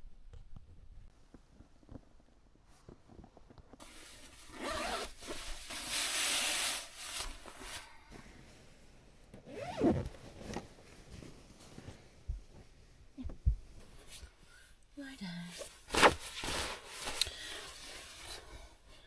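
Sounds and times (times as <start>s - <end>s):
rubbing and rustling: 0.6s - 14.4s, 15.6s - 19.0s
zip being pulled: 4.5s - 7.3s, 9.5s - 10.6s.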